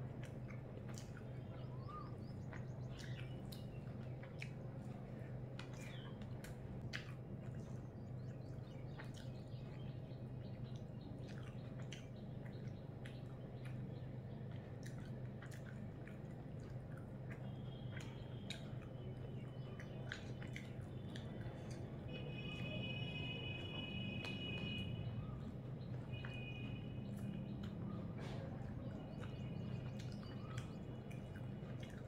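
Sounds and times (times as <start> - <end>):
steady low hum: 0.0 - 32.0
person chewing: 10.7 - 13.8, 14.5 - 22.1, 27.1 - 32.0.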